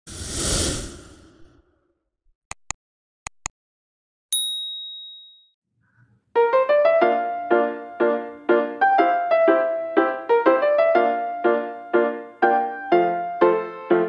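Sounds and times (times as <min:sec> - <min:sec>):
whoosh: 0:00.0 - 0:01.9
sharp clicks: 0:02.5 - 0:03.5
bright high ding: 0:04.3 - 0:05.5.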